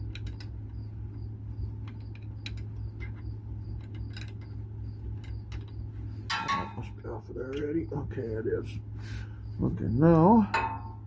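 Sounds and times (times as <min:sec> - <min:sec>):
steady low hum: 0:00.0 - 0:11.0
hand tools clicking and tapping: 0:05.2 - 0:06.9.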